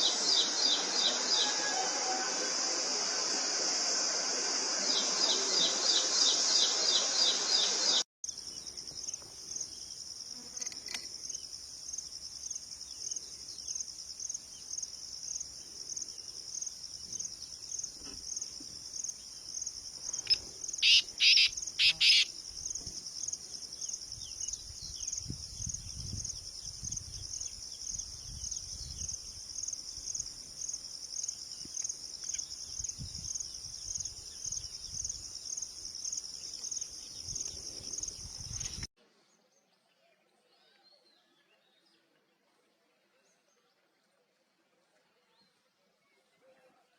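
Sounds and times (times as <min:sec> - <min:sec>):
crickets chirping: 0:00.0 - 0:38.9
bird calls: 0:20.2 - 0:22.3.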